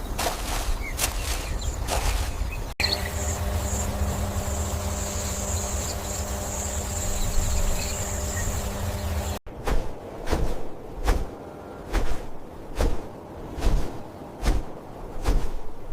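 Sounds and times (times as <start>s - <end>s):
faint steady hum: 2.8s - 9.4s
high insect buzz: 2.8s - 9.4s
low rumble: 2.8s - 9.9s.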